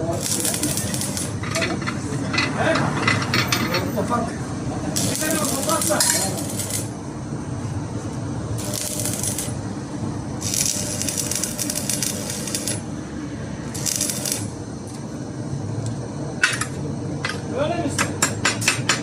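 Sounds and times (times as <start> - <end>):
harsh hissing metal noise: 0.0 - 7.4, 8.6 - 15.4
steady low hum: 0.0 - 18.9.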